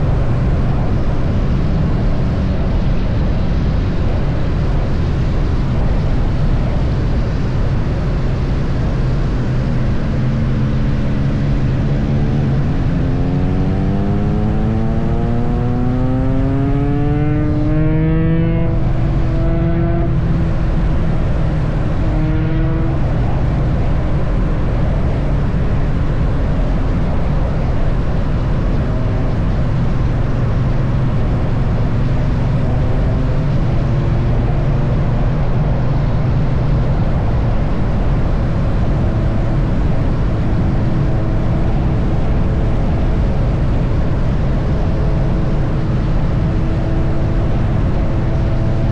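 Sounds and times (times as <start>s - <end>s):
wind and road rush: 0.0s - 48.9s
motorcycle engine: 8.4s - 26.9s.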